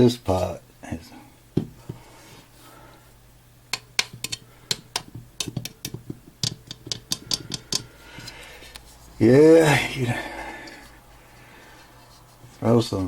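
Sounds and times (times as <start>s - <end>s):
clay pot clicking and knocking: 3.7s - 7.9s.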